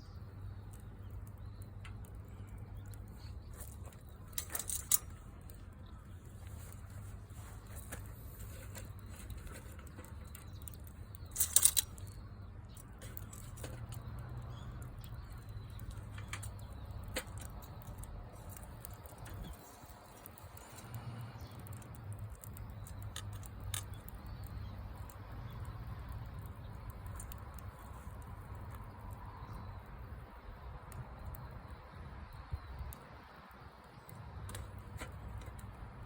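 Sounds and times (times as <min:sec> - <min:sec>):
wood bonfire crackling: 0:00.0 - 0:36.0.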